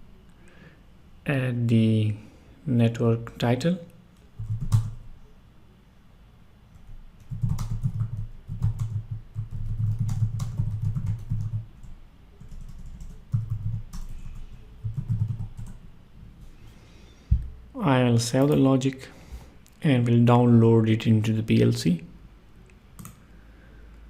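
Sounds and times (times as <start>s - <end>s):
keyboard typing: 4.4s - 5.0s, 7.2s - 15.8s.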